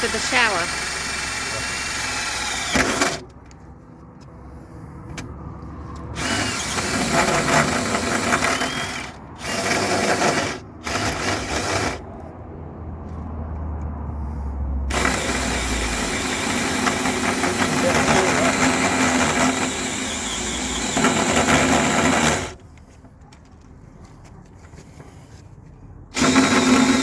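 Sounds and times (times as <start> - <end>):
power tool cutting steel: 0.0 - 3.2, 6.2 - 12.0, 14.9 - 22.6, 26.2 - 27.0.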